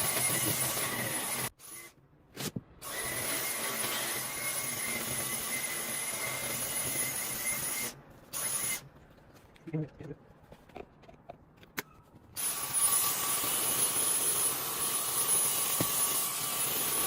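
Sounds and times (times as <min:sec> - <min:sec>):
appliance motor whining: 0:00.0 - 0:01.9.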